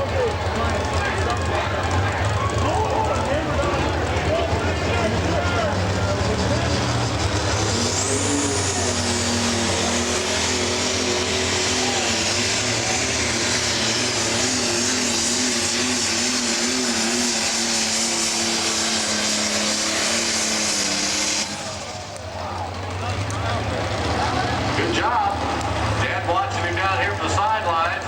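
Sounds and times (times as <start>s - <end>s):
diesel engine running flat out: 0.0s - 28.0s.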